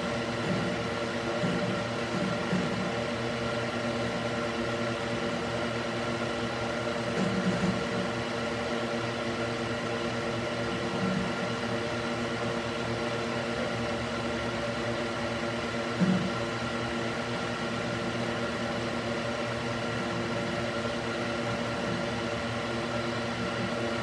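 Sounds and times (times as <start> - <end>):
cooling fan whirring: 0.0 - 24.0.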